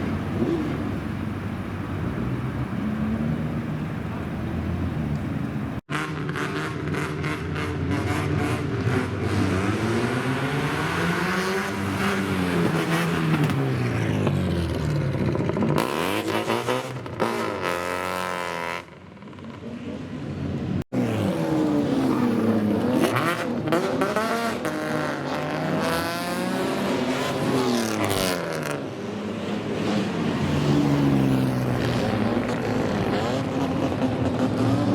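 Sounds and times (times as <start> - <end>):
car engines revving: 0.0 - 34.9.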